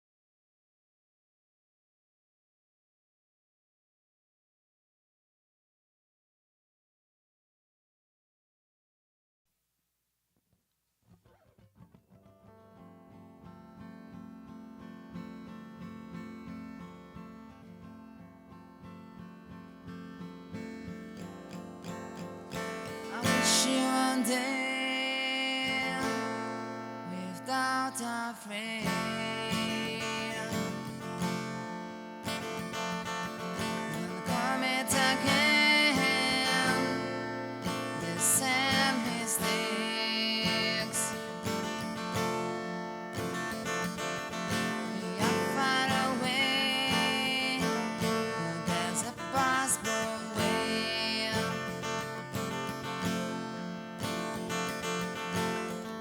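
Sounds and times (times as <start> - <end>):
strummed acoustic guitar: 11.3 - 56.0.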